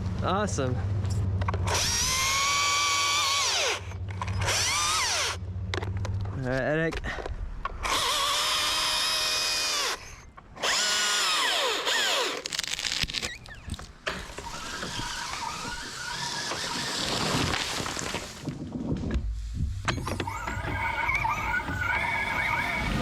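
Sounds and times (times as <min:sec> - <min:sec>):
electric chainsaw whining: 0:01.6 - 0:05.4, 0:07.8 - 0:18.4.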